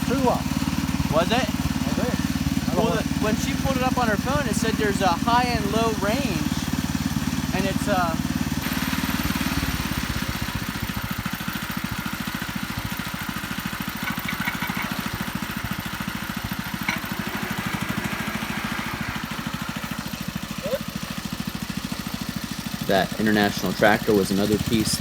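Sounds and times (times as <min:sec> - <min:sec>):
garden tractor engine running: 0:00.0 - 0:25.0.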